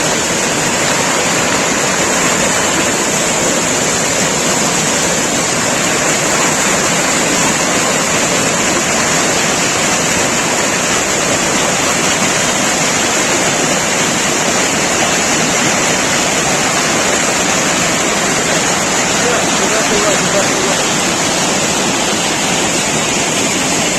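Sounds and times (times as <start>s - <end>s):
waterfall rushing: 0.0s - 23.9s.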